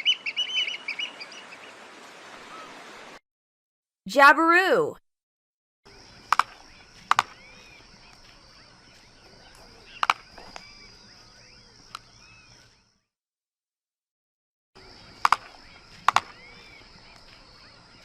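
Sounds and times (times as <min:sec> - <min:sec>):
faint bird calls: 0:02.4 - 0:02.8, 0:06.3 - 0:12.8, 0:15.3 - 0:18.0
sharp clicks or knocks: 0:06.3 - 0:07.3, 0:16.1 - 0:16.3.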